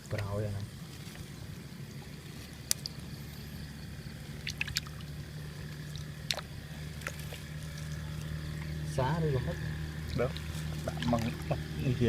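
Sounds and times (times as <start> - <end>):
steady low hum: 0.0 - 12.0
water trickling and dripping: 0.1 - 12.0
sharp splashes: 1.1 - 8.9, 9.6 - 11.8.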